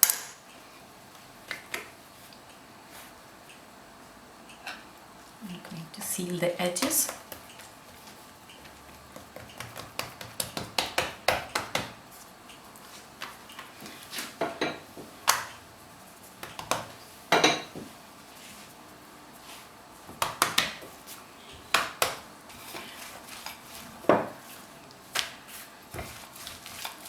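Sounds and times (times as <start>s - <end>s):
kitchen utensils clicking on surface: 0.0s - 0.4s.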